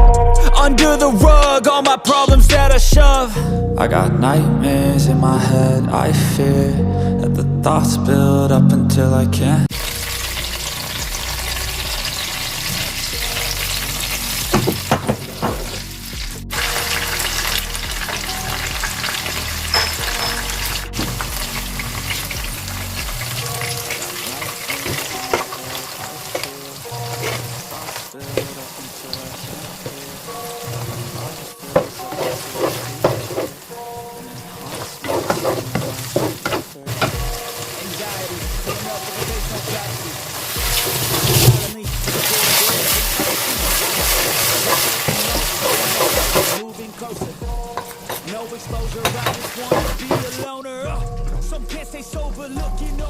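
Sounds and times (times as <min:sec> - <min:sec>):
food sizzling in oil: 0:09.7 - 0:50.5.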